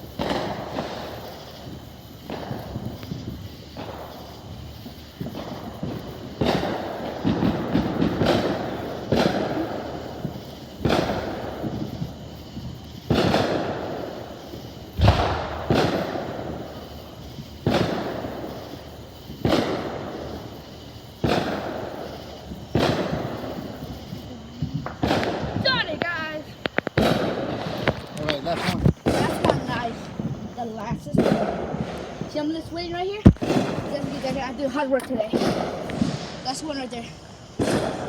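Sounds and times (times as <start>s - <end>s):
fireworks bangs: 0.0s - 38.0s
fireworks crackling: 0.0s - 38.0s.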